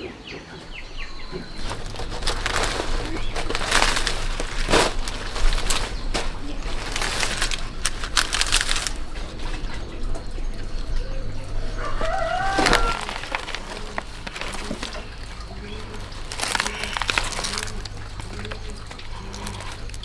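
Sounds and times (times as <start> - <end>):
crackly rustling and clicks: 0.8 - 20.0
rooster crowing: 11.0 - 14.2.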